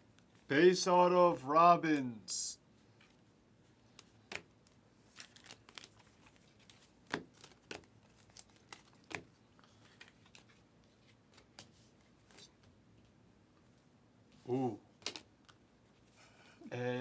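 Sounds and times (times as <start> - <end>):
wrappers crinkling: 5.0 - 10.7.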